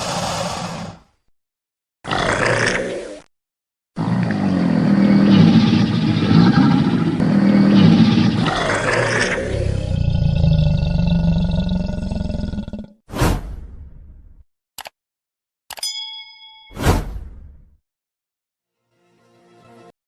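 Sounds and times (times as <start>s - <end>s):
large animal growl-roar: 2.1s - 3.3s, 4.0s - 13.0s.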